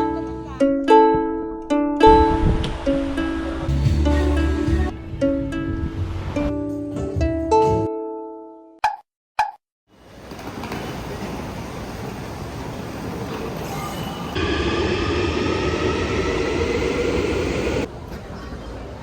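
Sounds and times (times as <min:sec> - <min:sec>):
train rumbling: 0:10.1 - 0:18.1
steady whine: 0:14.2 - 0:17.9.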